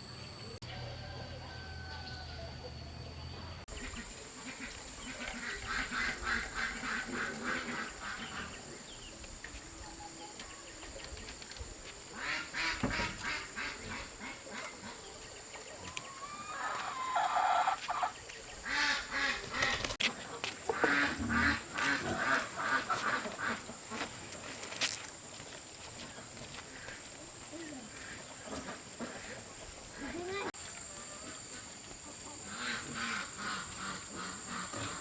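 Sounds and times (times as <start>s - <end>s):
ducks quacking: 3.7s - 8.8s, 12.1s - 15.2s, 16.6s - 24.3s, 27.8s - 35.0s.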